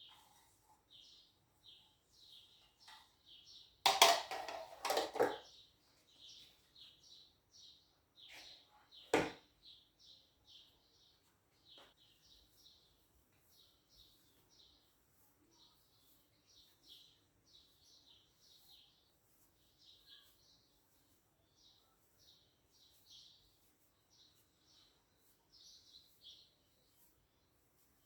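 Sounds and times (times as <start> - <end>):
small birds chirping: 0.0 - 4.1, 4.9 - 28.0
kitchen clatter: 3.8 - 5.5.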